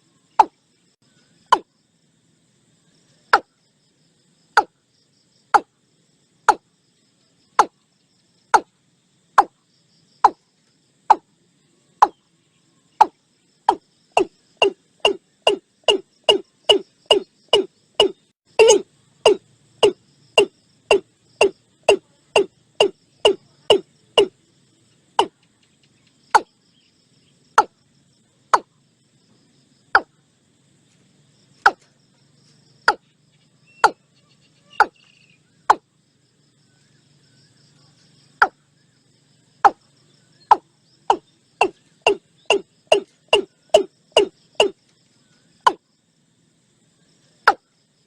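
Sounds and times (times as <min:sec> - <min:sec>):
bird calling with falling notes: 0:14.2 - 0:24.3, 0:33.6 - 0:35.8.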